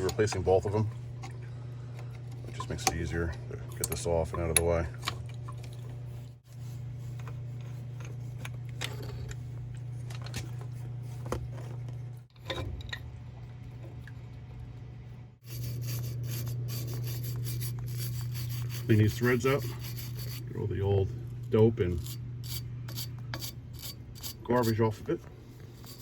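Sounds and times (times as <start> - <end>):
hand tools clicking and scraping: 21.8 - 26.0.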